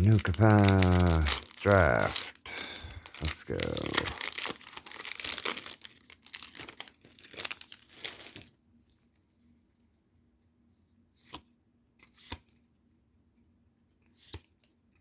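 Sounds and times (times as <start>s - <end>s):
foil wrapper tearing and crinkling: 0.0s - 8.5s.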